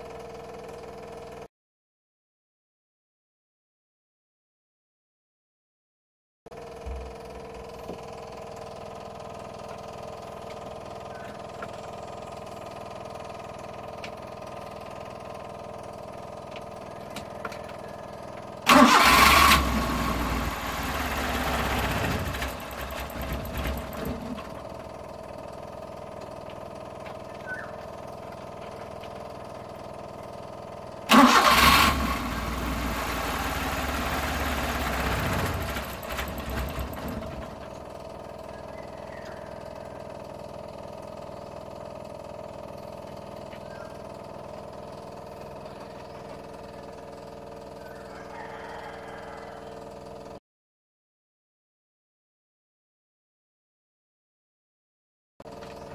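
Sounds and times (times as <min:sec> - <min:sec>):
engine cranking on the starter: 0:06.5 - 0:30.1, 0:31.0 - 0:48.4.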